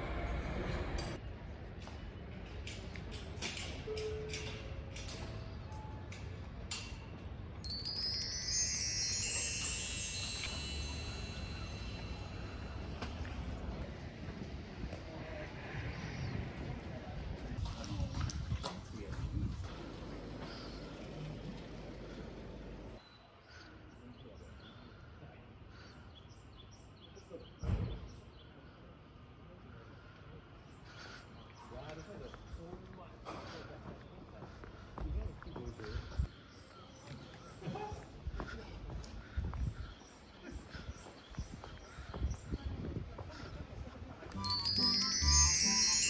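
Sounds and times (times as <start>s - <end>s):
outdoor background noise: 0.0s - 46.0s
cascade of high chimes: 7.6s - 13.8s, 44.4s - 46.0s
wind buffet on microphone: 7.7s - 20.0s.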